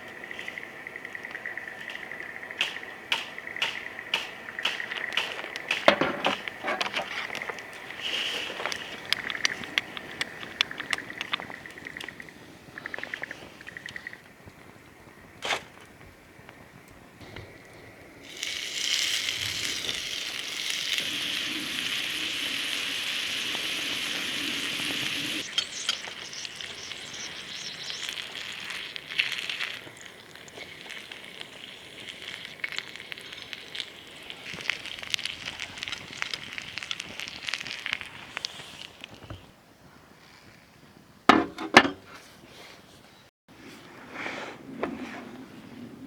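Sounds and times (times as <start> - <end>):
small pops and crackles: 0.0 - 14.8, 15.4 - 39.5
meat sizzling in a hot pan: 18.2 - 39.0.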